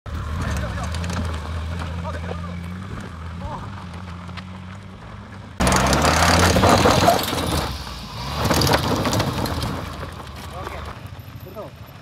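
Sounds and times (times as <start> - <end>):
car engine revving: 0.1 - 11.0
tyres spinning on gravel: 0.2 - 12.0.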